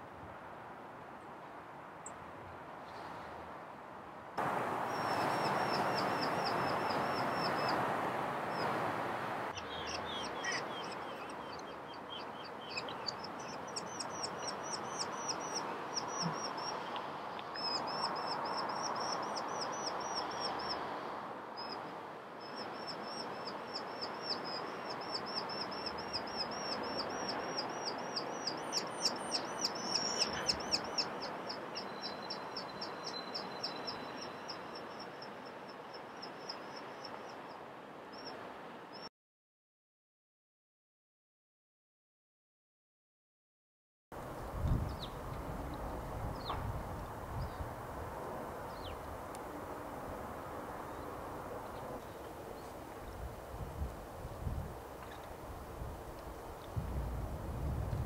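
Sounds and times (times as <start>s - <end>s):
steady background hiss: 0.0s - 39.1s
skylark trilling song: 9.6s - 16.7s, 24.0s - 34.6s.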